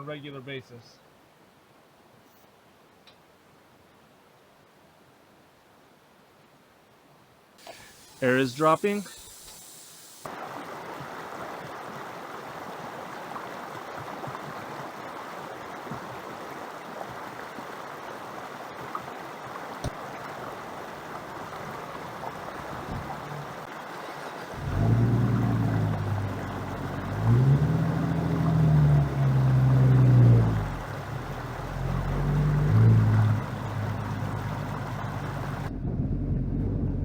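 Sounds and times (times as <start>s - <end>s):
vehicle engine: 20.4s - 37.0s.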